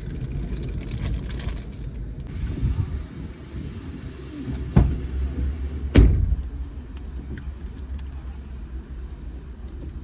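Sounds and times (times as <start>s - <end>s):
steady low rumble: 0.0s - 10.0s
dull thumps: 4.5s - 5.1s, 5.9s - 6.6s.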